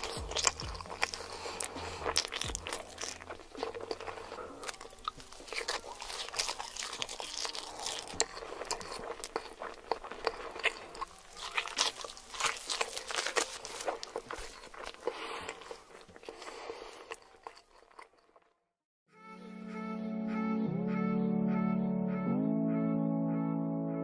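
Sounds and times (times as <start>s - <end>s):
music: 0.0s - 9.1s, 19.1s - 24.0s
mouth chewing clicks and smacks: 0.0s - 18.5s.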